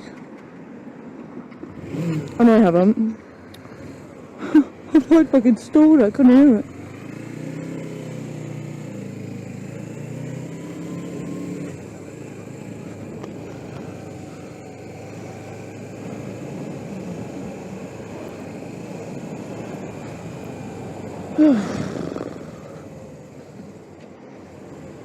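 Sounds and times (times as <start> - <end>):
wind and road noise: 0.0 - 25.0
motorcycle engine running: 5.0 - 25.0.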